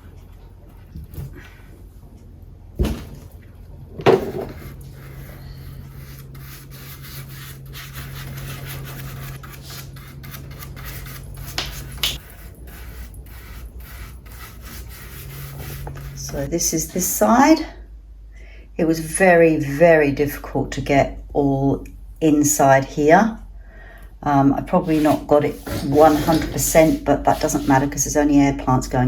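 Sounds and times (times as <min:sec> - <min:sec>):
low steady hum: 0:00.0 - 0:29.0
wood knocking: 0:04.0 - 0:04.6
cloth rubbing wood: 0:04.1 - 0:16.8, 0:24.8 - 0:28.0.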